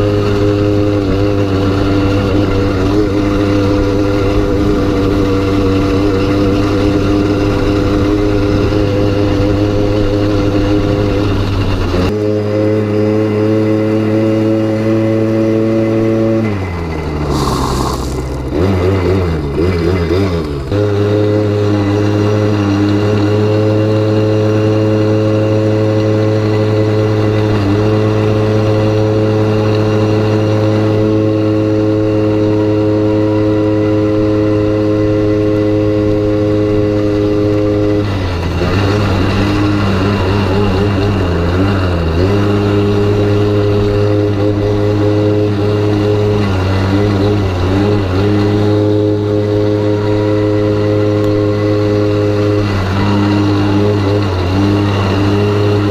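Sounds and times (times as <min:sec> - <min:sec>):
two-stroke engine revving: 0:00.0 - 0:55.9.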